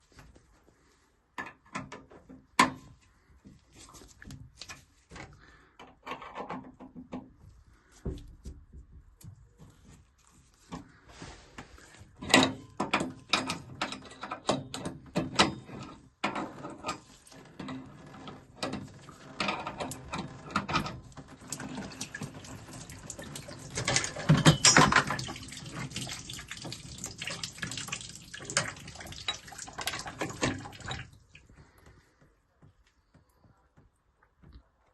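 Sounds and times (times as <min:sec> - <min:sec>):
water running and dripping: 0:21.1 - 0:31.9.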